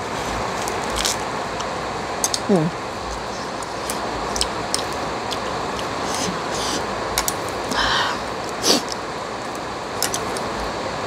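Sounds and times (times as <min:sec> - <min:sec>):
eating noises: 0:00.0 - 0:10.6
heavy rain hissing: 0:00.0 - 0:11.0
chopsticks clicking on container: 0:10.0 - 0:10.5.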